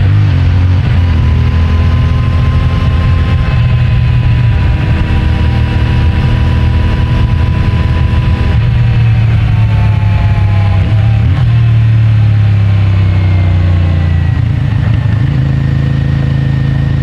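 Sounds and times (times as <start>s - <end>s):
motorcycle engine cruising: 0.0s - 17.0s
road and wind noise: 0.0s - 17.0s.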